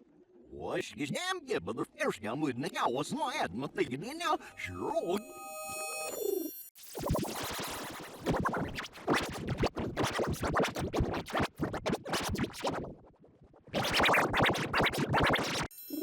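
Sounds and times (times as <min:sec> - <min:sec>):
stuttering record scratching effect: 0:06.8 - 0:13.1, 0:13.7 - 0:15.7.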